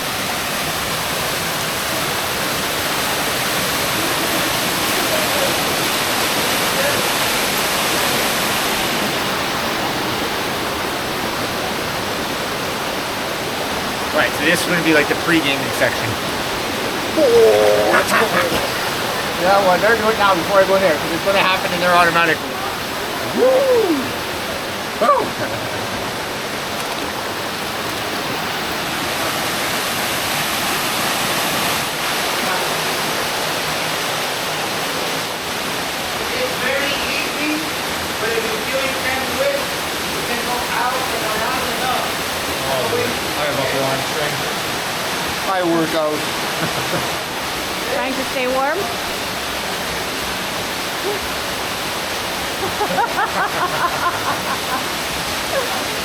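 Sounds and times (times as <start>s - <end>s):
waterfall rushing: 0.0s - 56.0s
faint voices: 17.1s - 25.9s.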